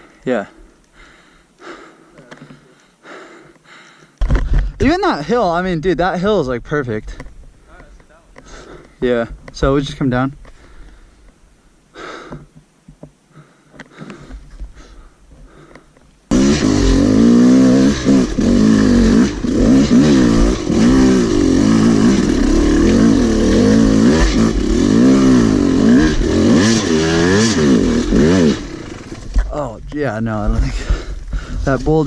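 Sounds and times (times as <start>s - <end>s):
dirt bike engine revving: 16.3s - 29.5s.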